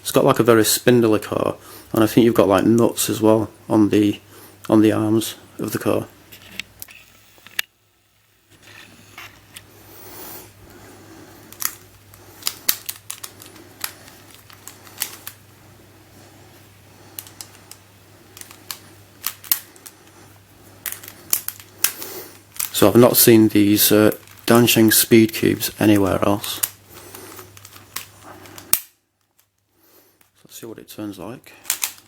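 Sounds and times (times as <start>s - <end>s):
plastic puzzle cube pieces clicking: 12.4s - 15.4s, 17.2s - 19.9s, 20.8s - 22.8s, 31.6s - 32.0s.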